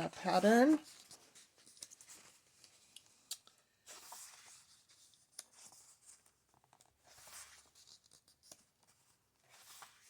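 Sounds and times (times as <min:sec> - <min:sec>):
book pages rustling: 0:00.2 - 0:10.0.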